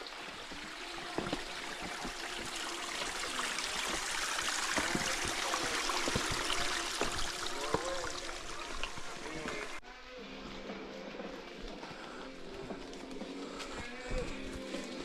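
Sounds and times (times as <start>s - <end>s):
stream water trickling: 0.0s - 9.8s.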